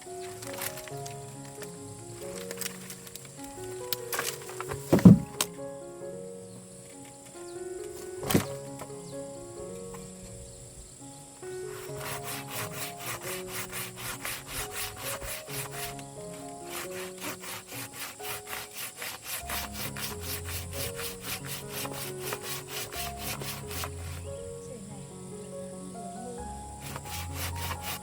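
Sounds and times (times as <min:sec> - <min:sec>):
background music with held notes: 0:00.0 - 0:28.0
hand saw cutting wood: 0:11.7 - 0:24.2, 0:26.8 - 0:28.0.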